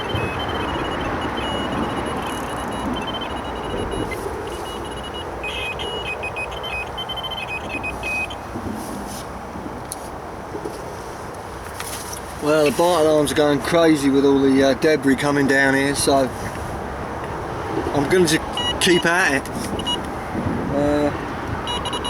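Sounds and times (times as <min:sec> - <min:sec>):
electronic bite alarms beeping: 0:00.0 - 0:08.6, 0:18.0 - 0:20.1, 0:21.6 - 0:22.0
road traffic rushing: 0:00.0 - 0:22.0.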